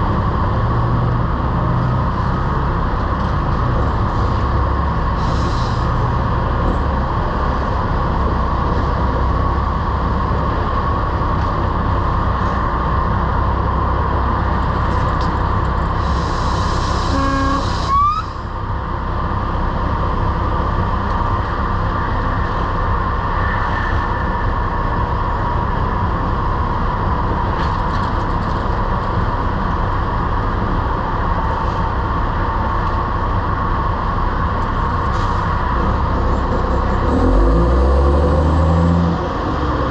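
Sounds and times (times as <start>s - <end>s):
truck diesel engine running: 0.0s - 39.9s
short air hiss: 16.0s - 17.9s
rising horn toot: 16.8s - 18.5s.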